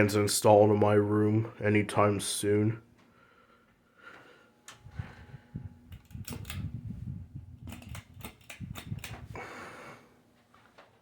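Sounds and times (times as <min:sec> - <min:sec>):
ceiling fan rumbling: 0:00.0 - 0:11.0
faint buzzing hum: 0:00.0 - 0:11.0.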